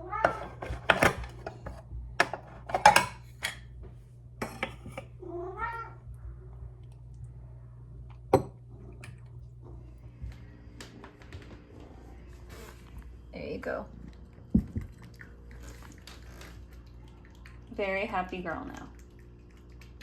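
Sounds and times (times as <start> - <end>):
dishes clinking and clattering: 0.2 - 3.7, 4.4 - 5.1, 8.3 - 9.2
cat meowing: 5.2 - 6.0.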